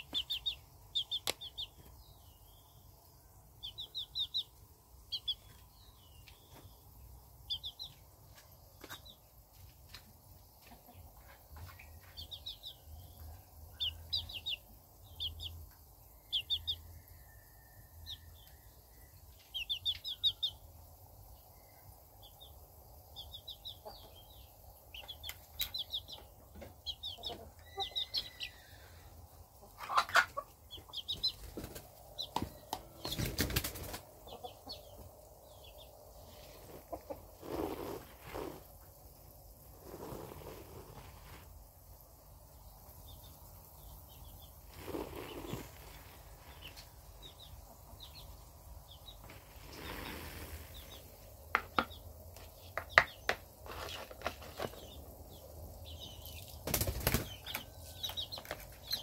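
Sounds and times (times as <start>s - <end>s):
bird chirping: 0.0s - 10.0s, 10.6s - 59.0s.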